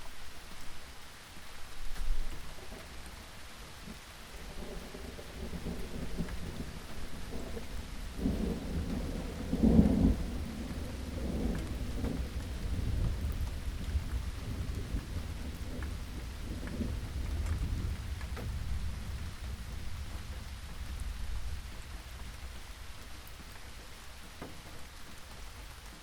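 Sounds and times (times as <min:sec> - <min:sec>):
steady rain: 0:00.0 - 0:26.0
thunder rumbling: 0:04.3 - 0:23.6.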